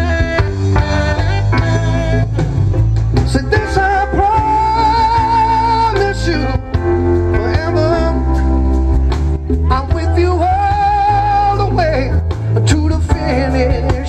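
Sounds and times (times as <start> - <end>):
live band playing: 0.0 - 14.0
person singing: 3.2 - 8.7, 9.5 - 14.0.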